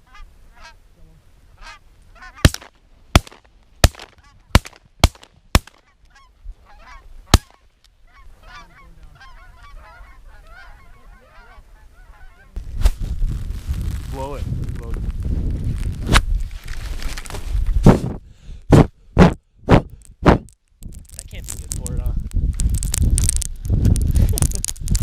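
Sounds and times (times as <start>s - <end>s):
geese honking: 0.0s - 0.8s, 1.6s - 2.7s, 5.7s - 12.6s
shotgun shots: 2.4s - 5.8s, 7.3s - 7.6s.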